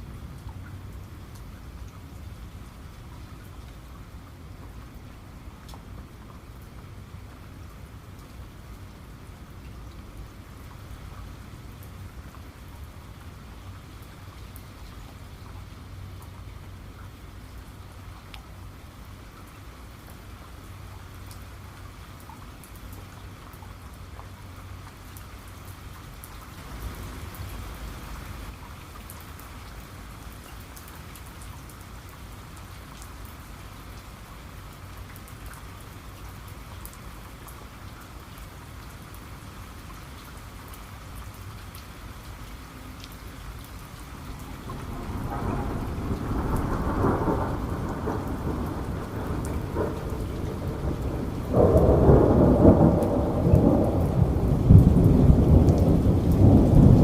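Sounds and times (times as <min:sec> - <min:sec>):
steady rain falling: 0:00.0 - 0:57.0
thunder rumbling: 0:44.2 - 0:57.0.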